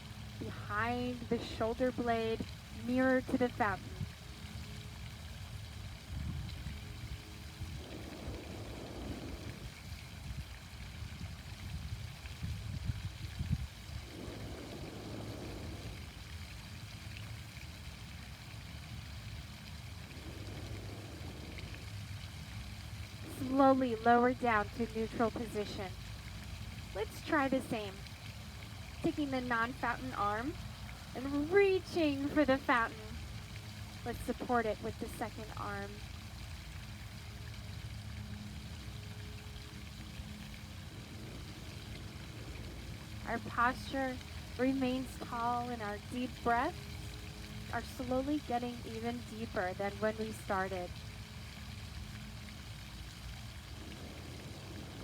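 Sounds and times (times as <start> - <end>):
faint low hum: 0.0 - 55.0
fountain water splashing: 0.0 - 55.0
low rumble: 6.0 - 11.5, 12.8 - 16.7, 18.8 - 23.5.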